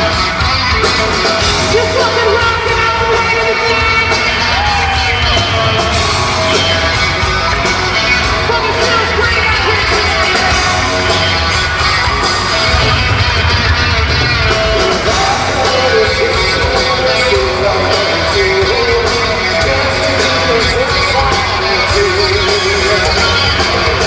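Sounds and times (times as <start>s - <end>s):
live hard rock band: 0.0s - 24.0s
person singing: 1.0s - 13.0s, 14.3s - 24.0s.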